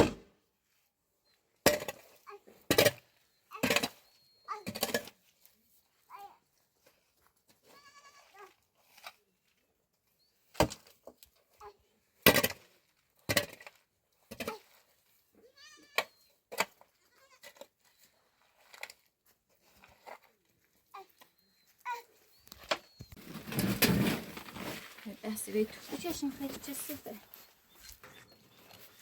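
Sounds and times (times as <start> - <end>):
goats bleating: 15.5 - 16.0.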